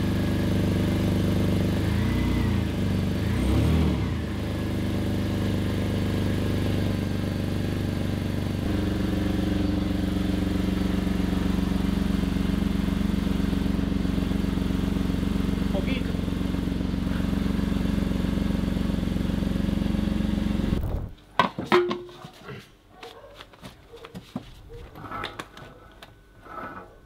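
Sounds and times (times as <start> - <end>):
car engine idling and revving: 0.0 - 21.1.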